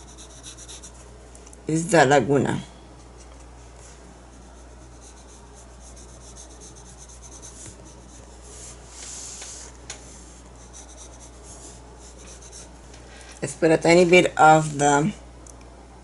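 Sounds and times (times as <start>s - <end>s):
steady low hum: 0.0s - 16.0s
paintbrush strokes on surface: 3.8s - 12.7s.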